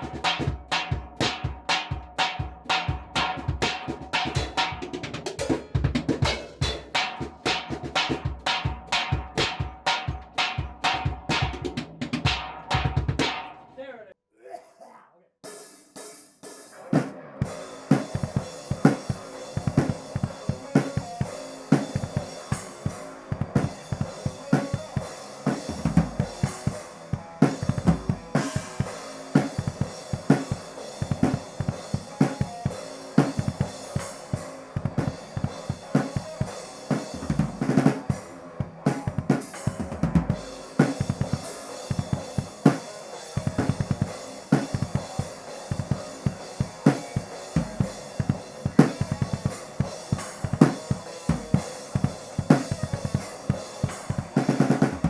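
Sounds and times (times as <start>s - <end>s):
snare drum hits: 0.0s - 13.6s.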